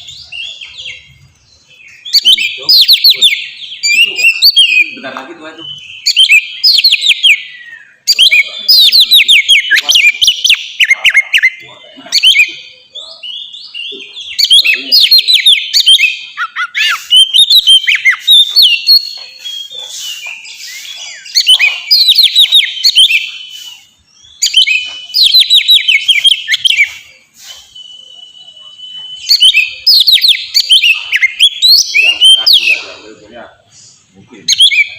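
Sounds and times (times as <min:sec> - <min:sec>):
magpie-robin singing: 0:00.0 - 0:34.9.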